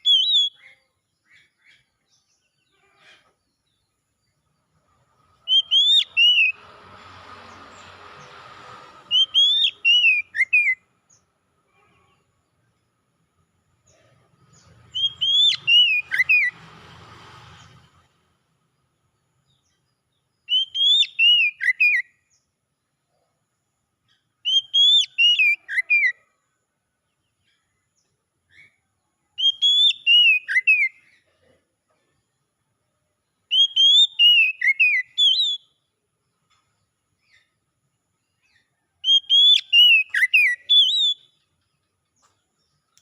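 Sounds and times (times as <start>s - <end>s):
bird singing whistled notes: 0.0s - 2.5s, 5.2s - 6.7s, 9.0s - 11.3s, 14.5s - 16.6s, 19.5s - 22.5s, 24.1s - 26.2s, 29.4s - 31.1s, 33.4s - 36.0s, 38.2s - 41.6s.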